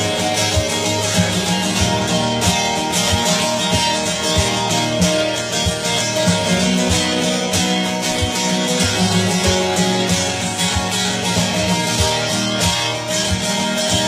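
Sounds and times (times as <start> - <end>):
acoustic guitar strumming: 0.0 - 14.0
low thump beat: 0.4 - 11.2.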